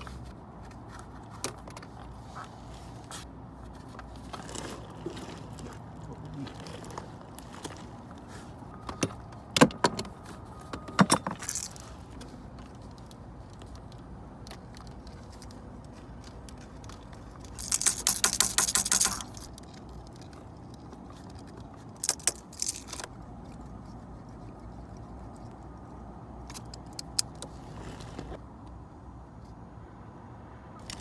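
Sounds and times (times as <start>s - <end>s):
metal tools clinking: 9.9s - 13.8s, 14.5s - 23.1s
jangling rattle: 10.8s - 23.1s.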